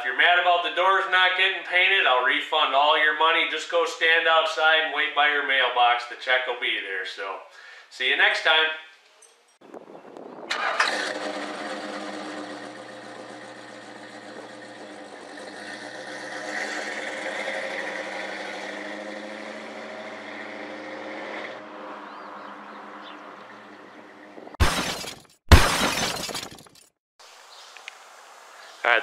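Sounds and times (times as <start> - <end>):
car engine starting and running: 10.5 - 25.1.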